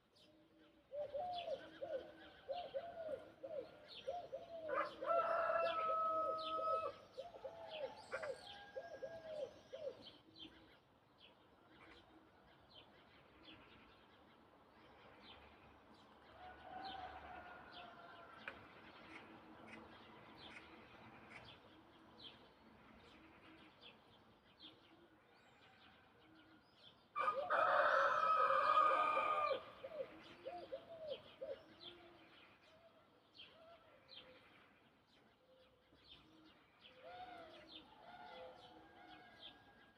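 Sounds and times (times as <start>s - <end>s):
low dove calls: 0.9s - 10.4s, 27.2s - 32.2s
rooster crowing: 4.7s - 7.0s, 27.2s - 29.8s.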